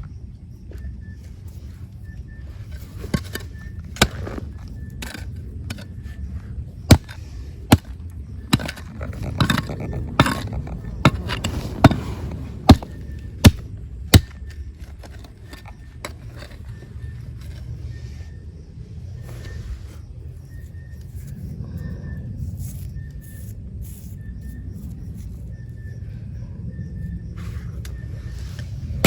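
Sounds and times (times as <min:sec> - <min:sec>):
low steady rumble: 0:00.0 - 0:29.0
scraping through gravel: 0:02.4 - 0:18.1
rocks knocking and clacking: 0:02.7 - 0:06.0, 0:06.9 - 0:17.6.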